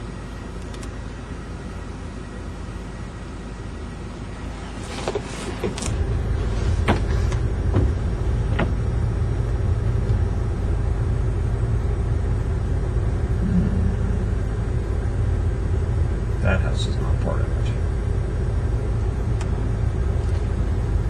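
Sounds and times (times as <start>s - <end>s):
car road rumble: 4.4s - 21.0s.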